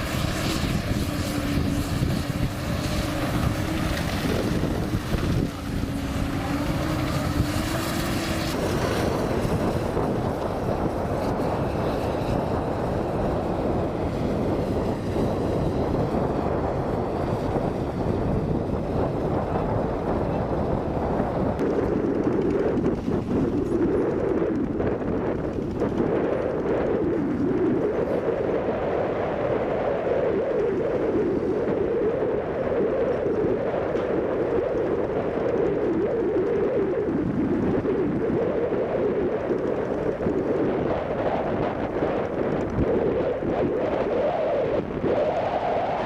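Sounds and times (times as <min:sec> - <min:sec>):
heavy diesel machinery running: 0:00.0 - 0:26.8
steady whine: 0:00.0 - 0:46.0
wind buffeting microphone: 0:00.0 - 0:46.0.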